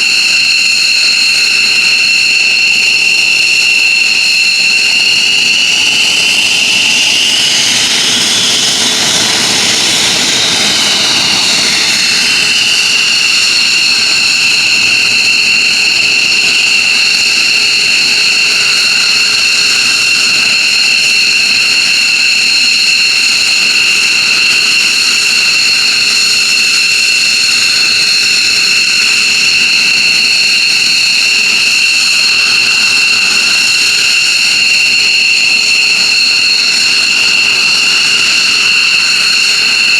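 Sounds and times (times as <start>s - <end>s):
jet engines whining and roaring: 0.0s - 39.9s.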